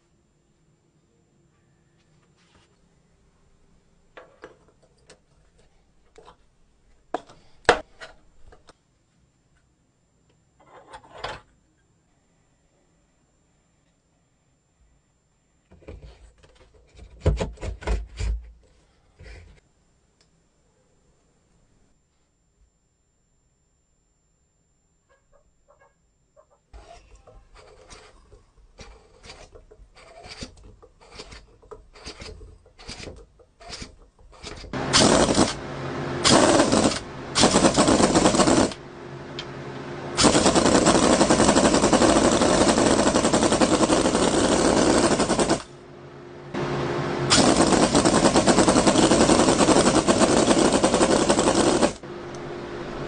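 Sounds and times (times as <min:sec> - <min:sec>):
engine starting and running: 0:34.8 - 0:53.0.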